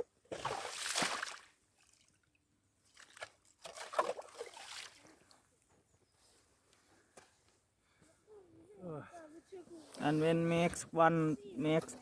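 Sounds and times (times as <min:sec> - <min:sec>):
water and slush sloshing on ice: 0:02.9 - 0:05.2.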